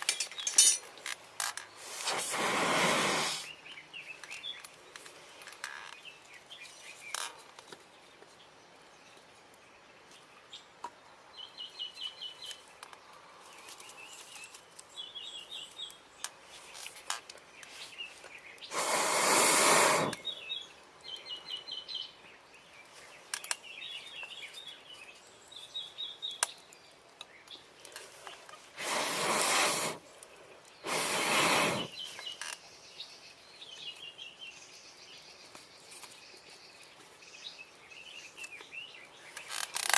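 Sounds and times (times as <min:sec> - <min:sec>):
hissing rushes of air: 0:01.8 - 0:03.5, 0:18.7 - 0:20.2, 0:28.8 - 0:30.1, 0:30.8 - 0:32.0.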